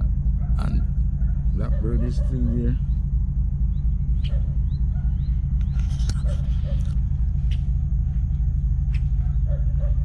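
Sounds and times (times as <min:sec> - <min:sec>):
low outdoor rumble: 0:00.0 - 0:10.0
bird chirps: 0:01.3 - 0:03.1, 0:03.7 - 0:07.8.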